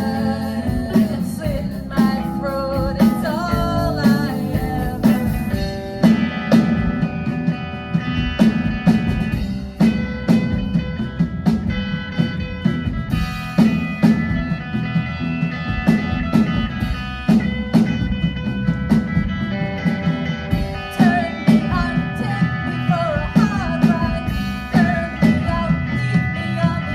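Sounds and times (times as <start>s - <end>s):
person singing: 0.0s - 6.5s, 20.8s - 26.9s
drum kit beat: 0.0s - 26.9s
electric guitar: 0.0s - 26.9s.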